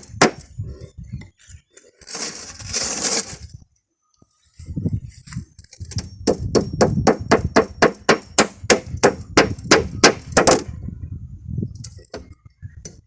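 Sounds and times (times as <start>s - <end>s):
hammer driving nails: 0.0s - 0.4s, 5.9s - 10.7s.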